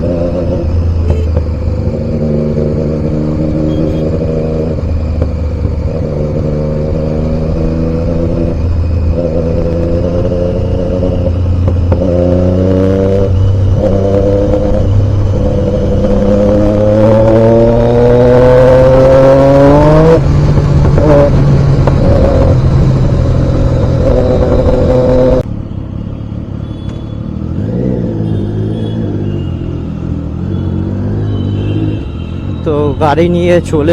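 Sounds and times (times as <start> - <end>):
motorcycle engine revving: 0.0 - 25.5.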